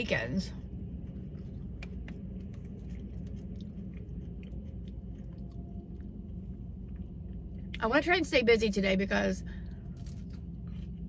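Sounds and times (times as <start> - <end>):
low rumble: 0.0 - 11.0
person chewing: 0.9 - 7.8, 9.7 - 11.0.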